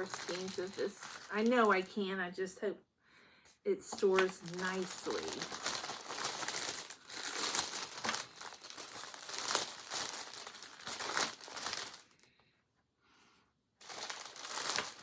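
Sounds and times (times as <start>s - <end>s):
packaging crinkling and rustling: 0.0s - 2.0s, 3.9s - 12.3s, 13.8s - 15.0s.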